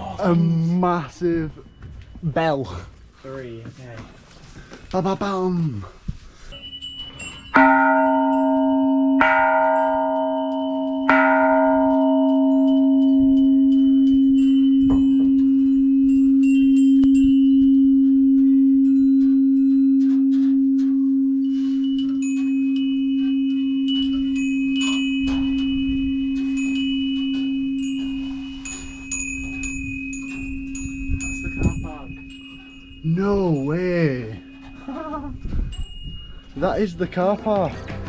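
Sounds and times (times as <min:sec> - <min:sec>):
small chimes tinkling: 0:06.3 - 0:17.8, 0:21.6 - 0:38.0
large temple bell ringing: 0:07.2 - 0:17.6, 0:36.5 - 0:38.0.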